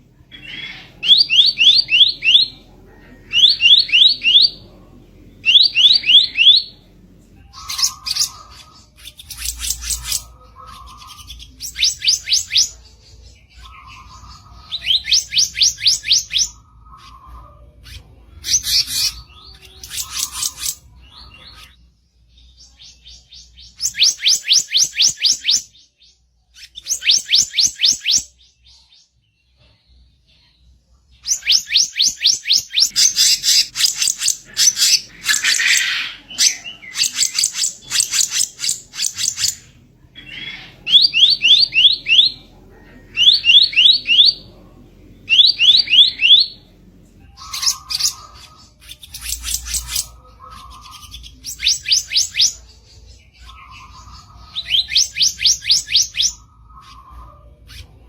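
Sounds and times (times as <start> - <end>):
bird rapid high chirps: 0.3 - 2.7, 5.4 - 6.7, 7.5 - 17.3, 18.4 - 21.7, 22.7 - 28.5, 31.2 - 42.5, 47.4 - 57.8.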